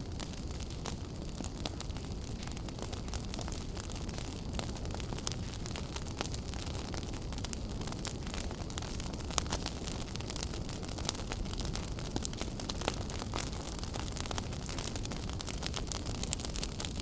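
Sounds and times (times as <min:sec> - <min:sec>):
fire crackling and popping: 0:00.0 - 0:17.0
fire rumbling: 0:00.0 - 0:17.0.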